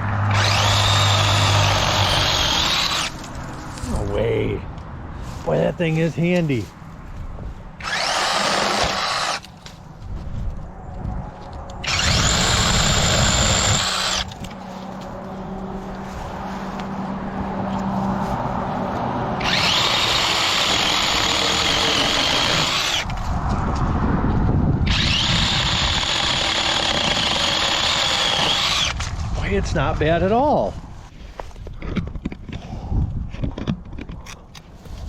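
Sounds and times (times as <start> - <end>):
chainsaw high whine: 0.2 - 3.2, 7.8 - 9.5, 11.8 - 14.4, 19.4 - 23.1, 24.9 - 29.0
low rough chainsaw noise: 0.2 - 3.2, 7.8 - 9.5, 11.8 - 14.3, 19.4 - 23.1, 24.9 - 29.0.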